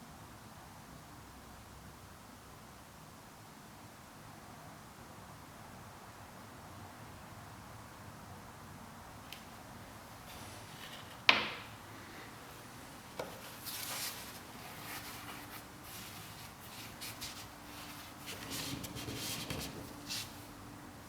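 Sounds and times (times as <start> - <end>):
faint steady hum: 6.4 - 21.0.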